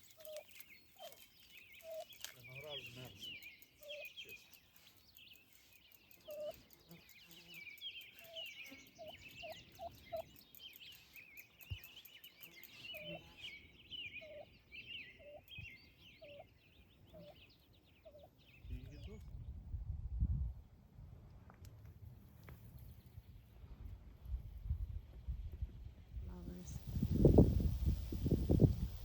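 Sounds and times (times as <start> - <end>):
small birds chirping: 0.0 - 19.6, 26.2 - 29.0.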